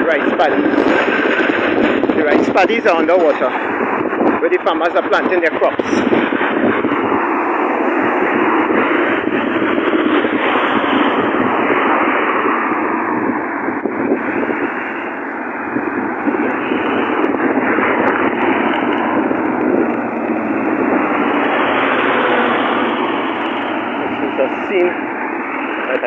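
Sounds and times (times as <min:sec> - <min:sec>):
car driving inside cabin: 0:14.8 - 0:26.0.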